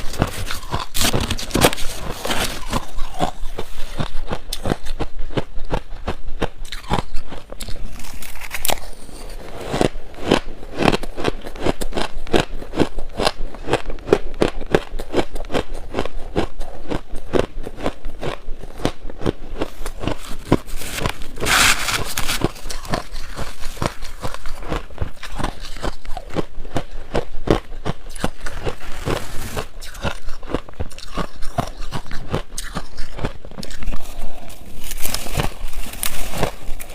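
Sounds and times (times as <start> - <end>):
shaved ice crunching: 0.0 - 3.4, 19.8 - 26.1, 32.7 - 36.9.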